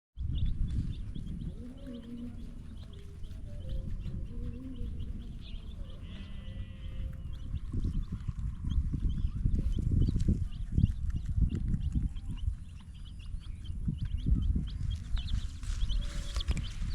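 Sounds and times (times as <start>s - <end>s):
small birds chirping: 0.2s - 16.9s
lower wavering call: 1.2s - 7.4s.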